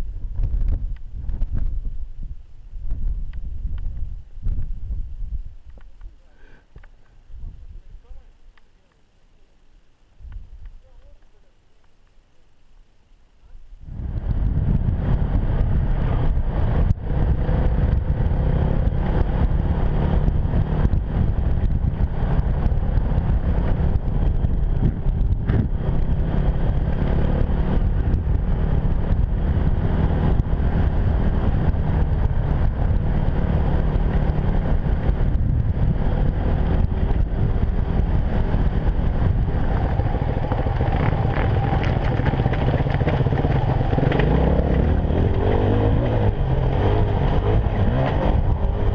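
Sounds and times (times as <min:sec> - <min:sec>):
motorcycle engine running: 0:13.8 - 0:48.9.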